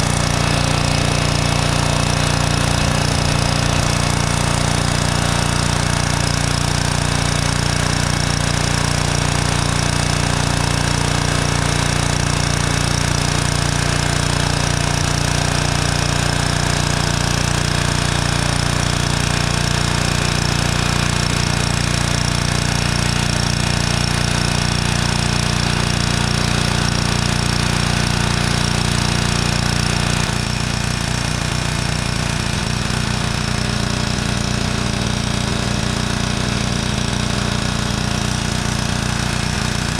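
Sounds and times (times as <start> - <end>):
pressure washer spraying: 0.0 - 19.2.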